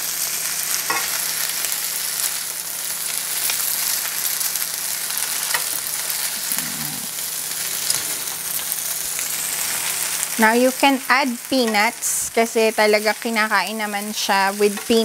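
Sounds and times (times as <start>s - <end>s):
noodles sizzling in a wok: 0.0s - 15.0s
utensils tapping and scraping pan: 11.6s - 11.9s, 14.6s - 15.0s.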